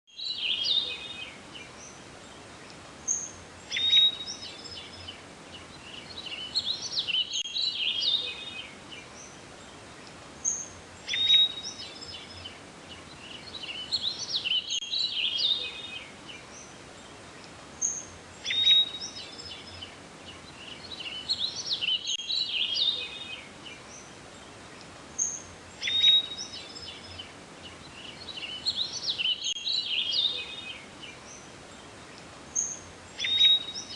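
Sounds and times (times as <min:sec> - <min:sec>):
songbird chirping and whistling: 0:00.1 - 0:01.9, 0:03.1 - 0:09.2, 0:10.4 - 0:16.7, 0:17.8 - 0:24.0, 0:25.2 - 0:27.3, 0:27.9 - 0:31.2, 0:32.5 - 0:33.9
steady hiss: 0:00.3 - 0:33.9.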